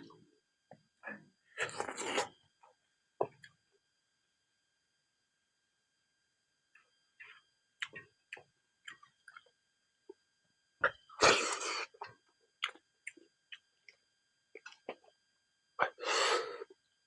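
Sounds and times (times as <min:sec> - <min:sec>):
crunching food: 0:01.6 - 0:02.4.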